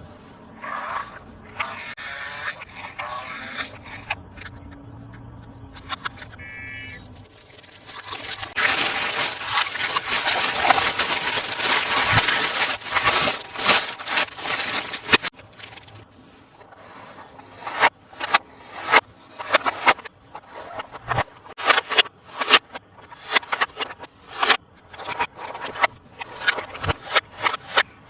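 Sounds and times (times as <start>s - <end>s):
packaging crinkling and rustling: 7.2s - 16.0s
plastic pieces clicking: 7.4s - 16.0s.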